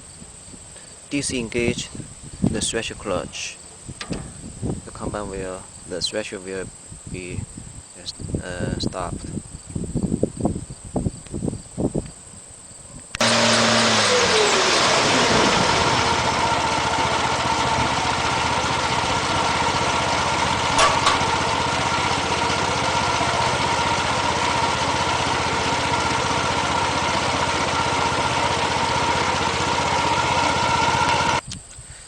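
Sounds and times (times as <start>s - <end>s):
engine idling: 13.2s - 31.4s
brief knock: 20.8s - 21.4s.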